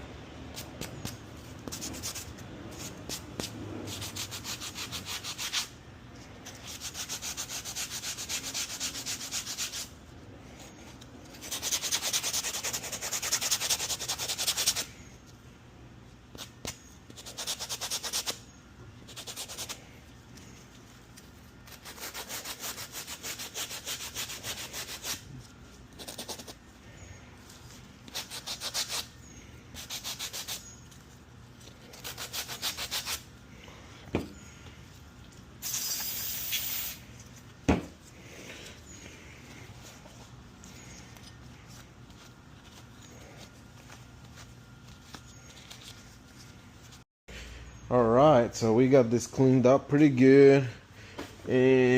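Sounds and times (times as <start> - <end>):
sanding block rasping: 3.9 - 5.7, 6.5 - 9.9, 11.4 - 14.9, 17.1 - 18.4, 21.7 - 25.2, 28.1 - 29.1, 29.8 - 30.6, 31.9 - 33.3.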